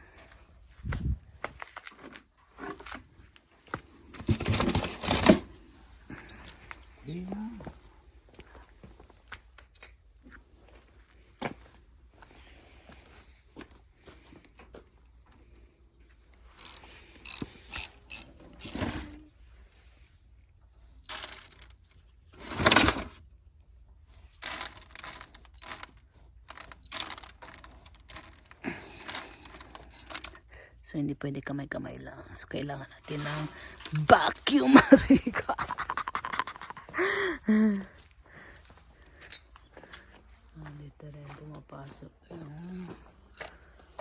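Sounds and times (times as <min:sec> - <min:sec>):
scraping metal parts by hand: 0:16.6 - 0:19.3, 0:20.8 - 0:23.2, 0:24.1 - 0:30.4, 0:33.0 - 0:34.4.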